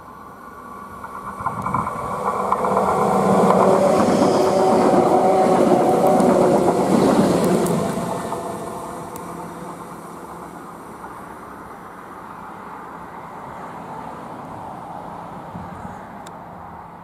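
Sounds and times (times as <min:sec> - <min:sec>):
train hum: 0:00.0 - 0:17.0
train wheels rumbling and clattering: 0:00.5 - 0:12.4.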